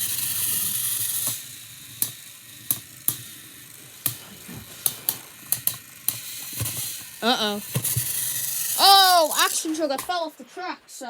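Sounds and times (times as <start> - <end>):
toy train motor hum: 0.0 - 10.8
hissy rush: 3.8 - 5.4.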